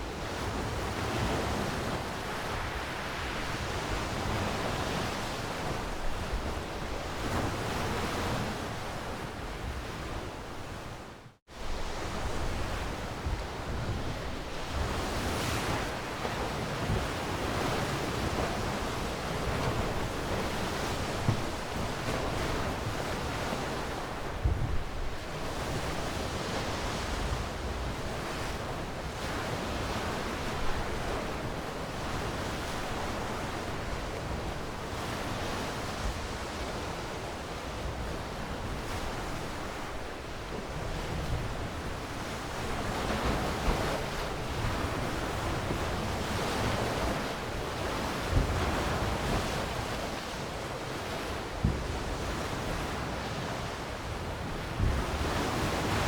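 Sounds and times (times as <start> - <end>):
sea waves washing onto shore: 0.0 - 8.8
wind thumps on microphone: 19.4 - 23.3, 24.1 - 28.0, 51.6 - 52.5, 54.7 - 56.0.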